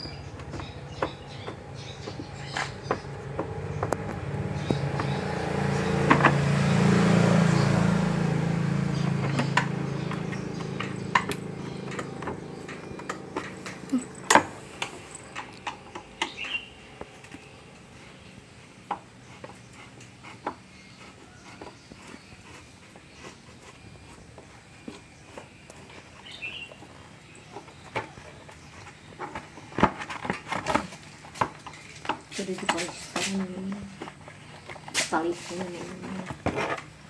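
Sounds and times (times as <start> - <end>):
low engine hum: 0.0 - 37.0
tools and parts clicking and knocking: 9.2 - 17.4.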